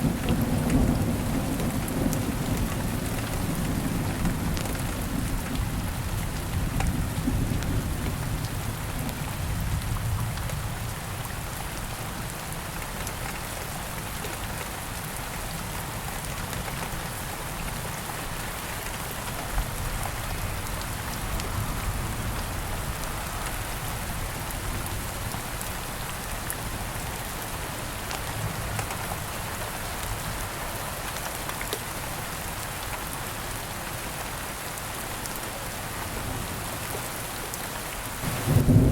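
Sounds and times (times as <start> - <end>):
low rumble of thunder: 0.0 - 11.4, 38.2 - 38.9
rain falling: 0.0 - 38.9.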